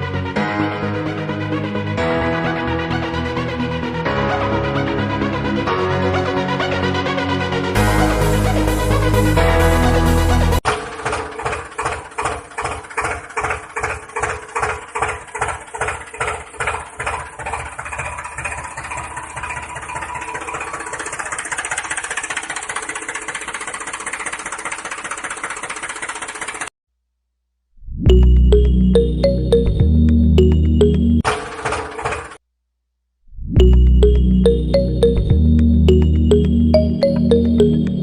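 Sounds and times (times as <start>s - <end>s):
small motor chugging: 10.7s - 26.7s.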